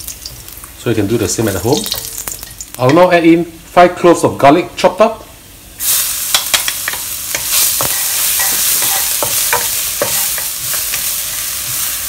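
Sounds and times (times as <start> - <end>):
garlic sizzling in hot oil: 0.0 - 3.4, 5.7 - 12.0
wooden spatula scraping a pan: 7.3 - 12.0.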